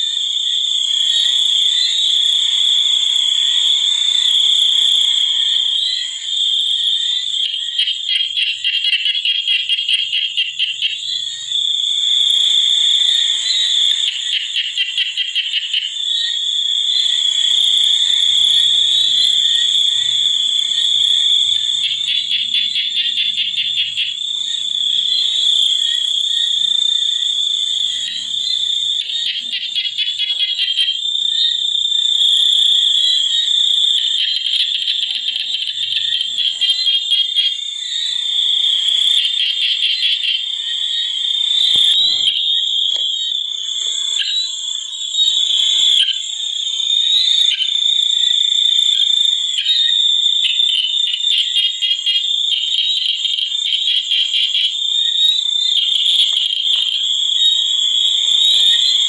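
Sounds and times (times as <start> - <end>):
high-pitched insect drone: 0.0 - 59.0
rapid pulsing frog calls: 0.0 - 59.0.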